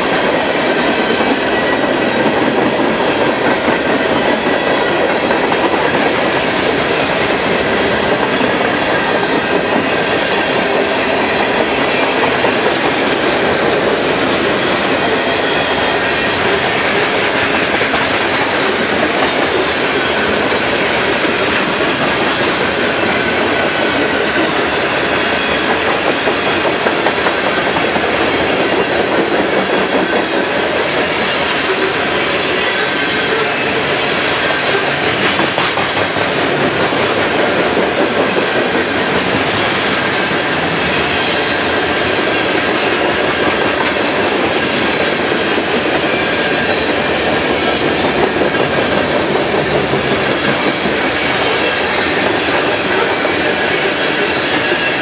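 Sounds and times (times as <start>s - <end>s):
clickety-clack over rail joints: 0.0s - 55.0s
train wheels rumbling on rail: 0.0s - 55.0s.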